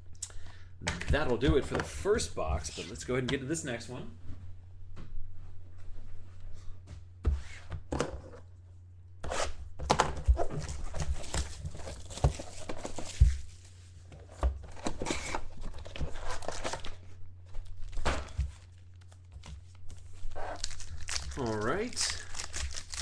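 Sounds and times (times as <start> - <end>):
steady low hum: 0.0 - 23.0
plastic shrink-wrap tearing: 18.6 - 23.0.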